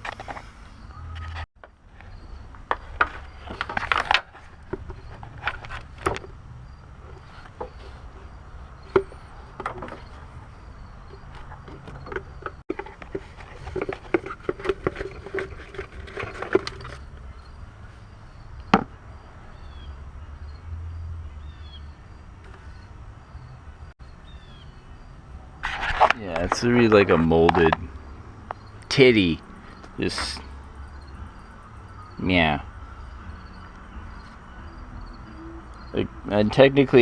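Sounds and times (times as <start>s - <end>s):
hand tools clicking and rattling: 11.1s - 17.2s.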